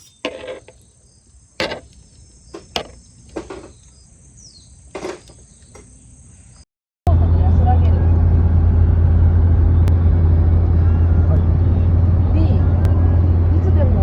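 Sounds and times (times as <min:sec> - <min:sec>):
crickets chirping: 0:00.0 - 0:06.6.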